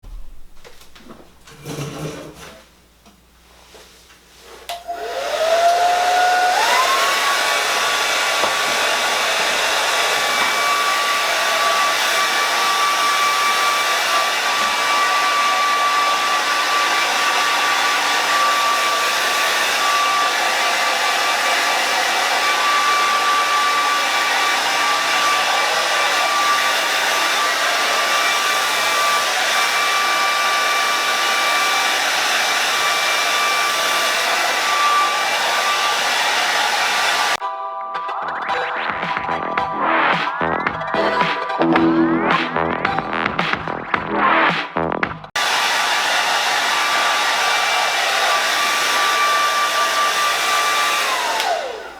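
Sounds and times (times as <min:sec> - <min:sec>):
hair dryer whine and rush: 0:04.6 - 0:37.4, 0:45.3 - 0:51.9.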